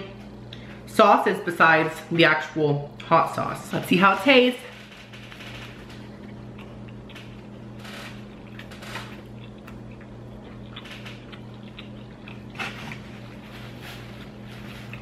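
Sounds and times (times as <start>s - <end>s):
steady low hum: 0.0s - 15.0s
person chewing crunchy food: 5.2s - 15.0s.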